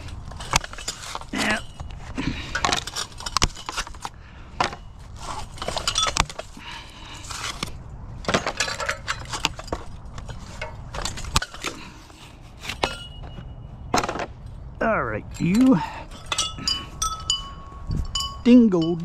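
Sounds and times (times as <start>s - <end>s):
hard objects clinking and rattling: 0.0s - 14.6s, 15.2s - 19.0s.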